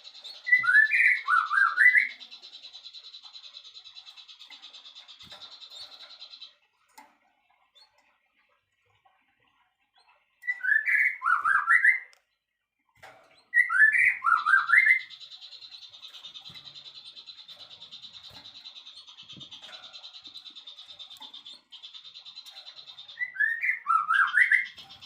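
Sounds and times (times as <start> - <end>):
songbird whistled phrases: 0.5 - 2.2, 10.4 - 12.1, 13.6 - 15.1, 23.2 - 24.8.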